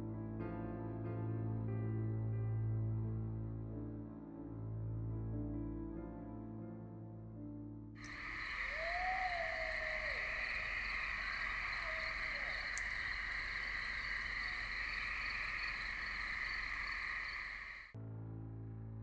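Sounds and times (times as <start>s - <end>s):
soft piano music: 0.0s - 9.2s
faint wavering call: 8.0s - 14.8s
crickets and katydids trilling: 8.0s - 18.0s.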